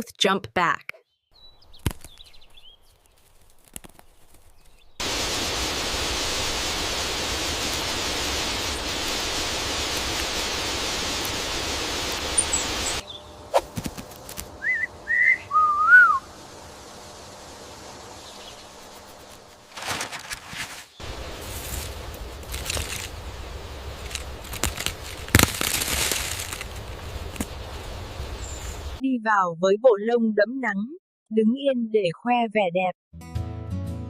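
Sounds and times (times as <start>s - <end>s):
loud rushing hiss: 5.0s - 13.8s, 14.4s - 19.7s, 21.0s - 29.0s
bird whistling: 12.3s - 13.4s, 14.6s - 16.4s.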